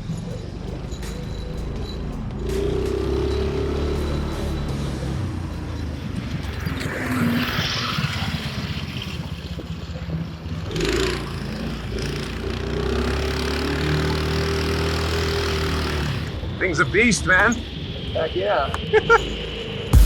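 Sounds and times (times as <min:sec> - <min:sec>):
go-kart engine running: 0:02.2 - 0:16.6.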